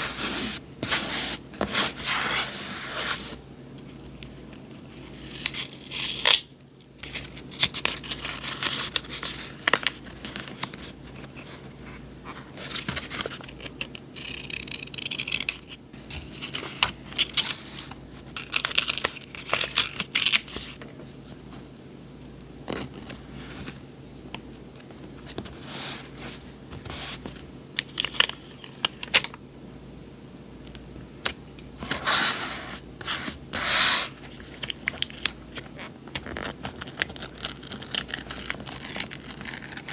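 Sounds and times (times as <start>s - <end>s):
paper rustling and crinkling: 7.0s - 13.9s, 31.8s - 39.9s.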